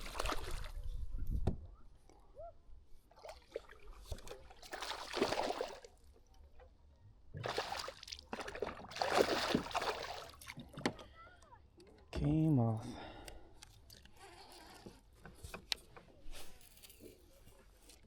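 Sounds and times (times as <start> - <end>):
water splashing and sloshing: 0.0 - 0.8, 3.1 - 6.4, 7.3 - 11.0.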